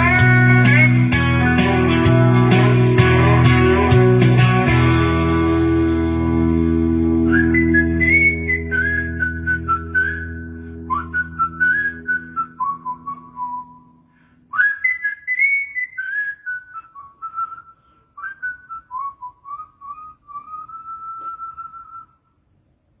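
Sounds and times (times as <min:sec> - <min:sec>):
person whistling melody: 0:00.0 - 0:05.4, 0:07.1 - 0:22.3
low final chord: 0:00.0 - 0:11.7.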